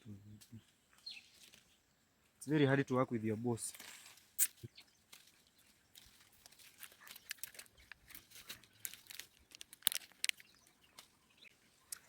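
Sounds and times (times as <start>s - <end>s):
leaves brushing: 3.6s - 11.2s
coffee cherries snapping off: 8.5s - 11.1s.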